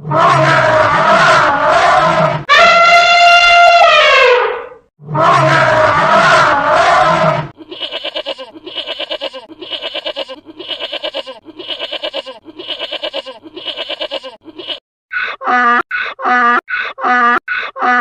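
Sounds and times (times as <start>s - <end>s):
elephant-like trumpet call: 0.1s - 8.0s
harsh donkey-like calls: 5.2s - 18.0s
goat-like bleating: 7.6s - 16.4s.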